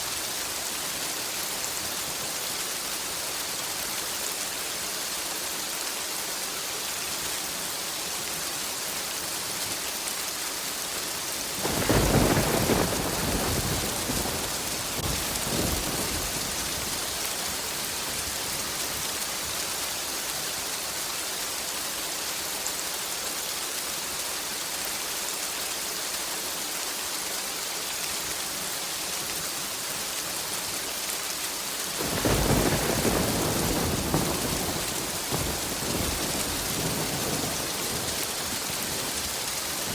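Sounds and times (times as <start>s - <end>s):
steady rain hissing: 0.0s - 39.9s
thunder rumbling: 11.6s - 18.8s, 32.0s - 39.9s.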